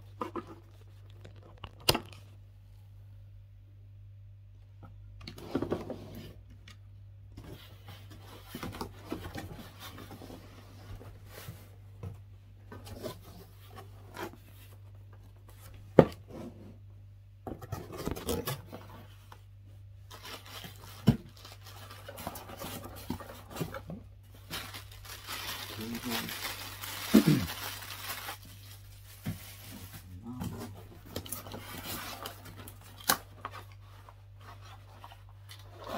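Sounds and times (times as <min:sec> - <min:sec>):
low steady hum: 0:00.0 - 0:35.9
packaging rustling and scraping: 0:20.0 - 0:35.9.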